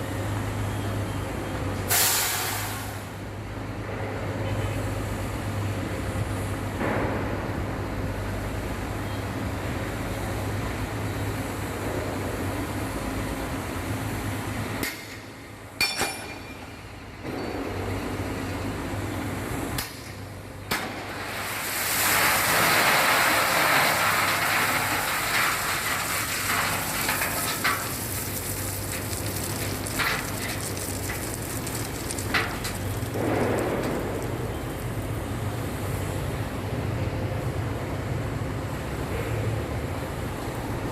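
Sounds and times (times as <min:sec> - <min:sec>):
broad hissing rush: 0:21.0 - 0:34.5.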